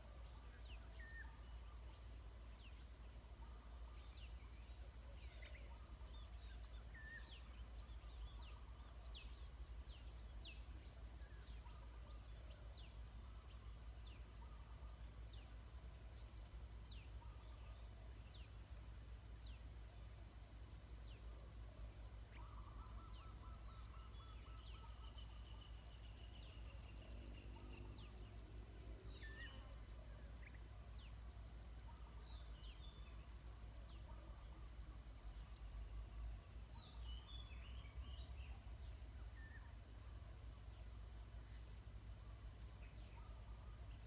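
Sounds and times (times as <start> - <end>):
faint birdsong: 0.0 - 44.0.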